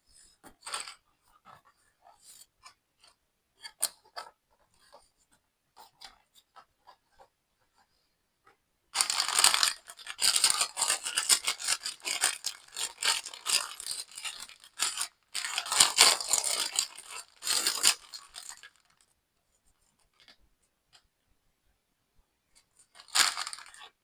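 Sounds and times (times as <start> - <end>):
packaging rustling and tearing: 9.0 - 18.7.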